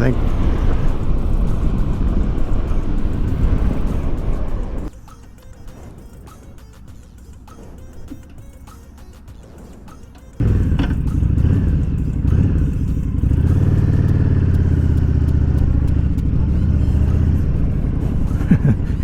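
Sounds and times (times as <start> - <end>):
motorcycle engine running: 0.0 - 4.9, 10.3 - 19.0.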